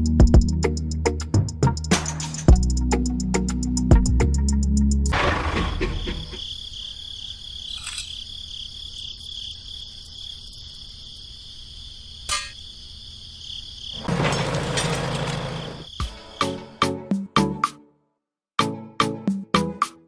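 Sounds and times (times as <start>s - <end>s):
crickets chirring: 5.2s - 16.6s.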